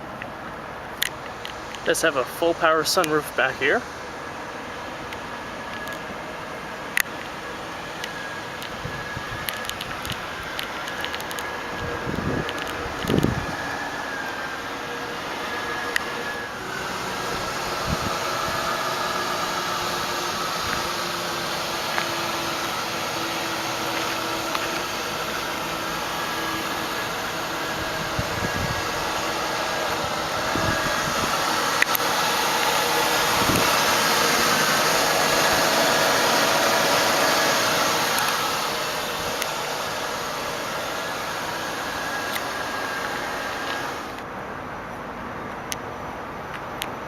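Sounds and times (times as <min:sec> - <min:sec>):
car engine idling: 0:00.0 - 0:45.3.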